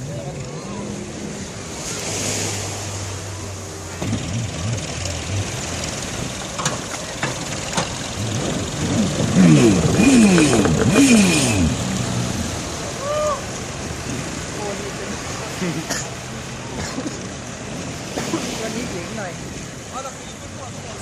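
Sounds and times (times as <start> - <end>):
speedboat engine revving: 0.3 - 19.9
sharp knocks: 9.6 - 11.4.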